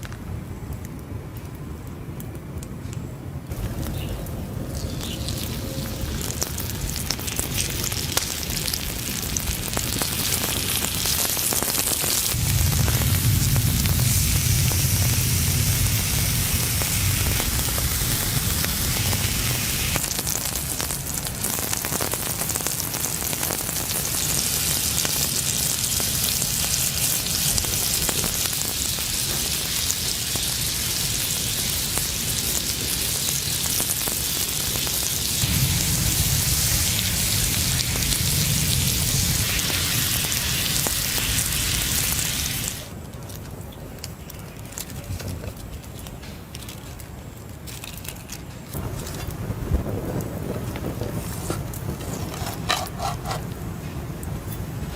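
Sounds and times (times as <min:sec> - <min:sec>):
food sizzling in a pan: 0:03.5 - 0:42.9.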